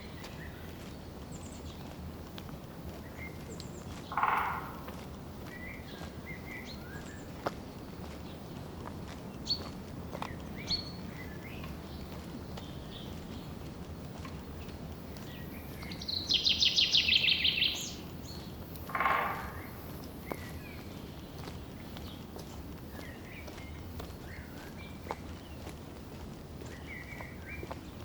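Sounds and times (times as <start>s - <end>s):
birds chirping: 0.0s - 25.8s, 26.4s - 28.0s
harsh bird call: 4.1s - 4.9s, 18.9s - 19.9s
bird trilling: 4.1s - 5.0s, 16.2s - 18.0s, 18.8s - 19.9s.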